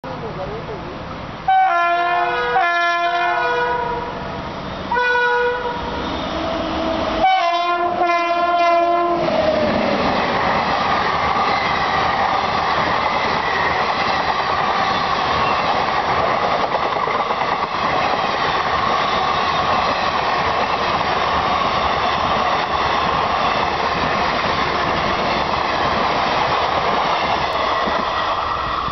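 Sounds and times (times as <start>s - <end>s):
locomotive two-tone horn: 1.5s - 4.2s, 4.9s - 6.3s, 7.2s - 9.2s
wheels on rail: 2.4s - 28.9s.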